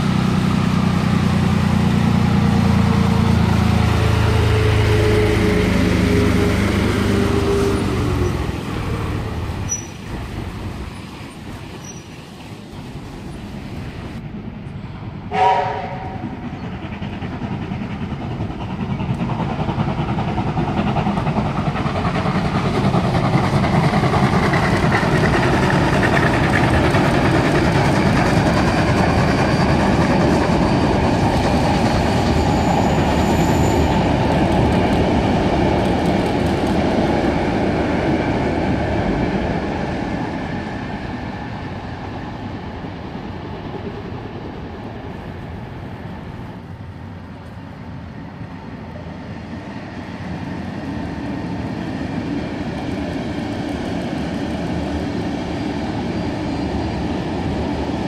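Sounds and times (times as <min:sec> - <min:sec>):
train rumbling over a bridge: 0:00.0 - 0:58.0
wheels clattering on rails: 0:16.0 - 0:40.6.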